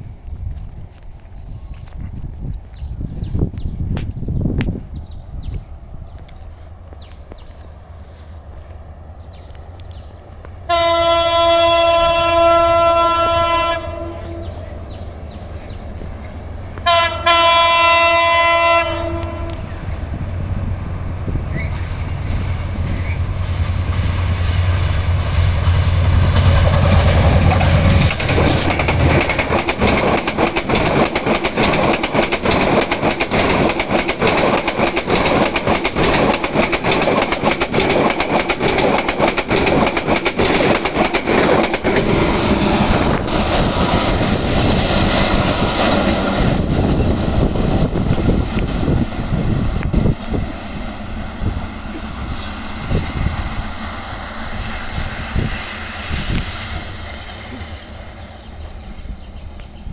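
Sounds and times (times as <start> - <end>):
diesel locomotive engine rumble: 0.0 - 59.9
train wheels clickety-clack: 21.5 - 50.7.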